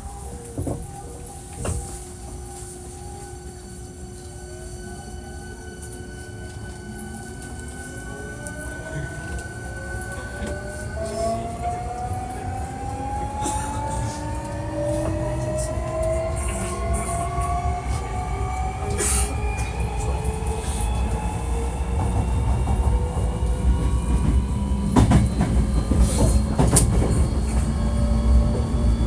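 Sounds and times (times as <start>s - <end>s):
train wheels rumbling on rails: 0.0s - 29.0s
electric train motor whine rising: 26.6s - 29.0s.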